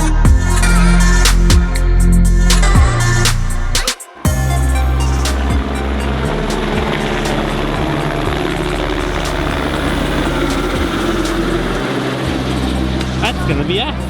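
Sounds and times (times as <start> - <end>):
helicopter flying: 4.1 - 14.0.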